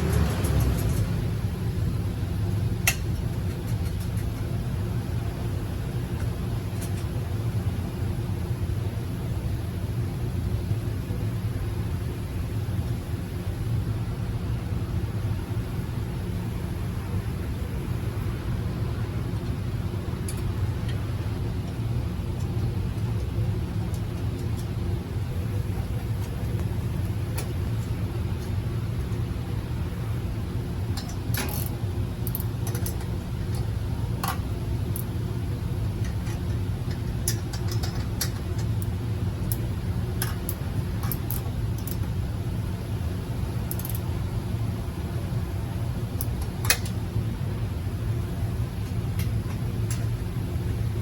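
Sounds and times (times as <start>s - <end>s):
light metallic clicks: 31.0s - 34.4s, 36.0s - 42.1s, 43.7s - 44.1s.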